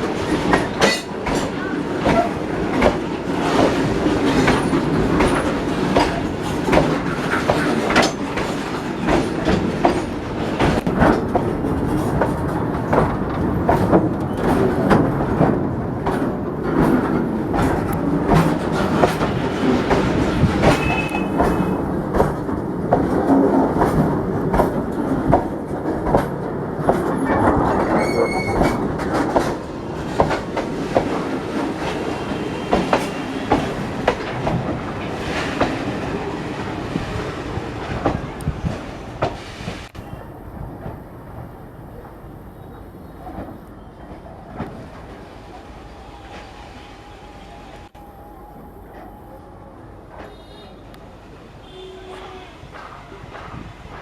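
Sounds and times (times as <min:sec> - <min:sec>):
train wheels clacking over rail joints: 0:00.0 - 0:45.2, 0:52.1 - 0:54.0
high wheel squeals: 0:28.0 - 0:28.8.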